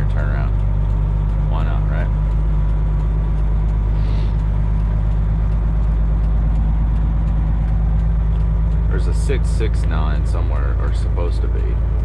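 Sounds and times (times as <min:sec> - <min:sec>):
truck diesel engine drone: 0:00.0 - 0:12.0.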